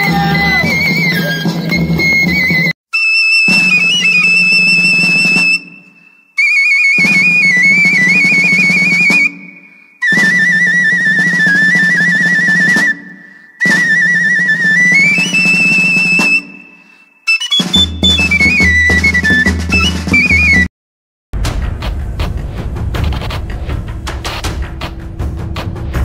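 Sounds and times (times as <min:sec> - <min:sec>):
high wavering melody over drums: 0:17.5 - 0:20.7.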